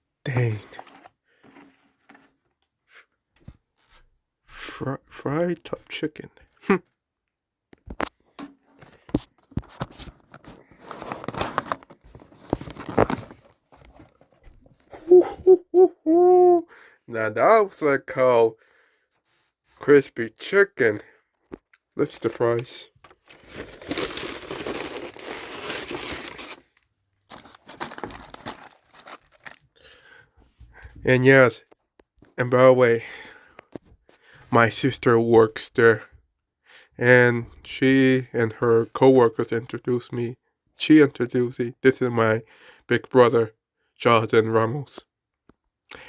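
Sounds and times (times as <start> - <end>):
food packaging crinkling: 8.9 - 14.4, 22.1 - 29.9.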